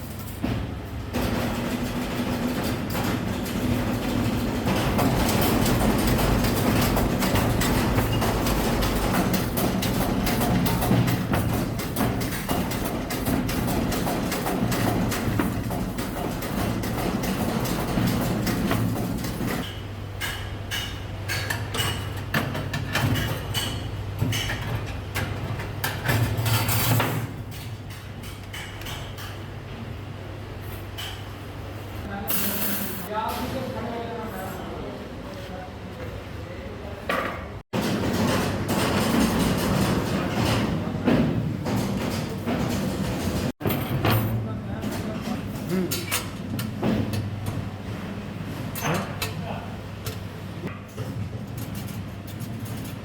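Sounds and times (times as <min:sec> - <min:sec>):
steady mechanical hum: 0:00.0 - 0:53.0.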